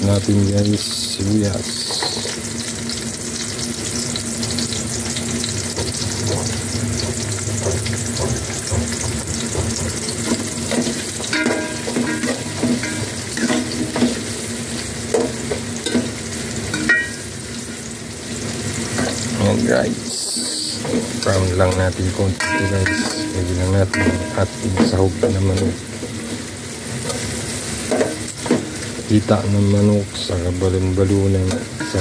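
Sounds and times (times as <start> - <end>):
food sizzling in hot oil: 0.0 - 32.0
metal spoon scraping pot: 5.7 - 14.3, 31.7 - 32.0.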